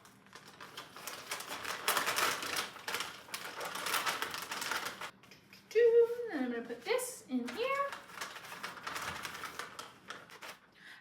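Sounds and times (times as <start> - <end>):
plastic packaging crinkling: 0.0 - 5.1, 7.4 - 10.6.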